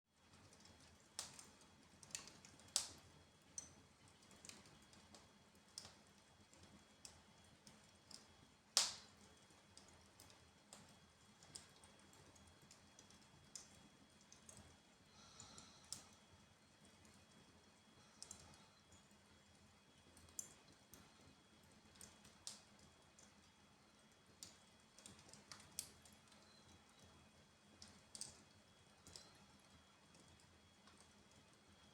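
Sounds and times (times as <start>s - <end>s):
wood fire crackling: 0.4s - 27.0s, 27.7s - 31.6s.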